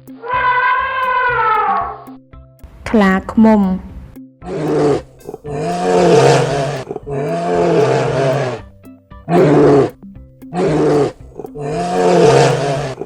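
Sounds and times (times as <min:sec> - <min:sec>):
bear roaring: 0:00.2 - 0:02.1, 0:04.4 - 0:08.7, 0:09.3 - 0:13.0.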